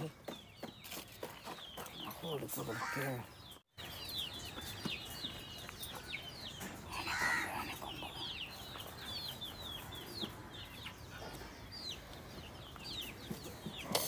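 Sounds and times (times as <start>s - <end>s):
birds chirping: 0.0s - 14.0s
harsh bird call: 2.6s - 3.5s.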